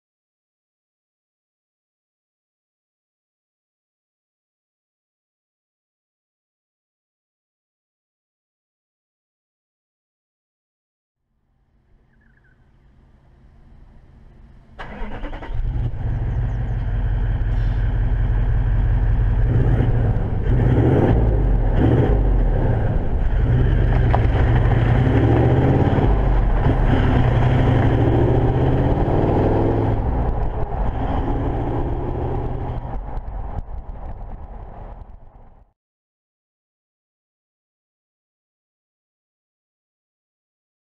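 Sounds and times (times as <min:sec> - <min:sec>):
deep diesel exhaust note: 0:11.9 - 0:32.8.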